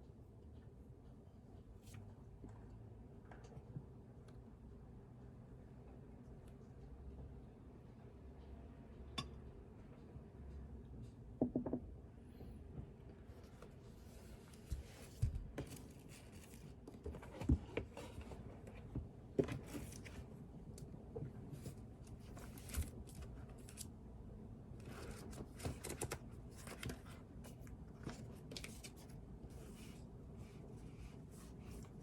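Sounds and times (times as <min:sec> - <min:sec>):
soft knocks on desk: 0:11.4 - 0:11.8
paper rustling: 0:14.1 - 0:18.4, 0:24.9 - 0:30.6.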